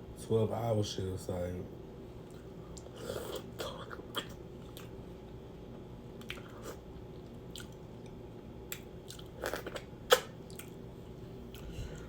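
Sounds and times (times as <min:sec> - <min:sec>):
person chewing food: 0:02.2 - 0:05.0, 0:06.2 - 0:12.0.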